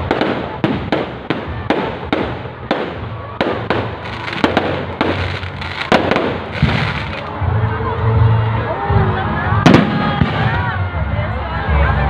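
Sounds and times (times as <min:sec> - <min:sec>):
fireworks bangs: 0:00.0 - 0:07.3, 0:09.6 - 0:10.6
fireworks crackle: 0:00.0 - 0:07.4.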